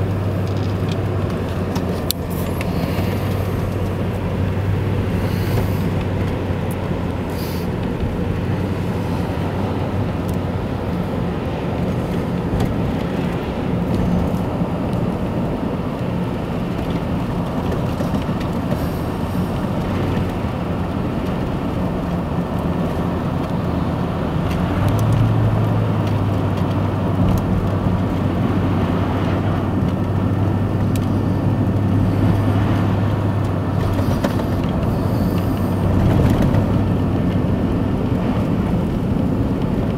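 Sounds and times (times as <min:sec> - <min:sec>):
low drone: 0:00.0 - 0:15.7
car engine and road noise: 0:00.0 - 0:39.9.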